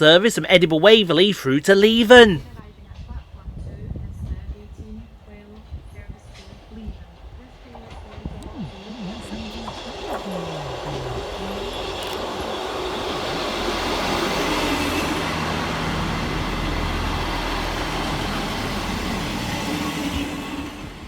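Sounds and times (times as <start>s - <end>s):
train engine hum: 0.0s - 21.0s
wheel and rail noise: 5.6s - 21.0s.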